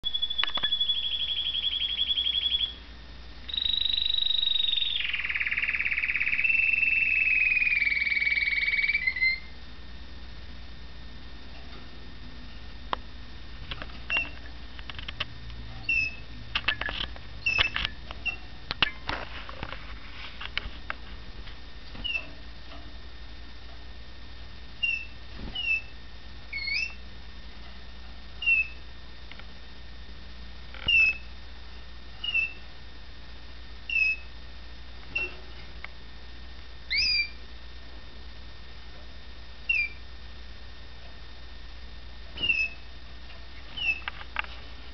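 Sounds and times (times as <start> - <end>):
canary chirping: 0.0 - 9.6, 14.1 - 14.5, 15.8 - 19.1, 22.0 - 22.4, 24.7 - 27.1, 28.3 - 29.0, 30.8 - 31.4, 32.2 - 32.8, 33.9 - 34.3, 35.1 - 35.4, 36.9 - 37.4, 39.6 - 40.1, 42.4 - 42.9, 43.7 - 44.2
clicks and rustles: 13.6 - 15.6, 16.5 - 23.0.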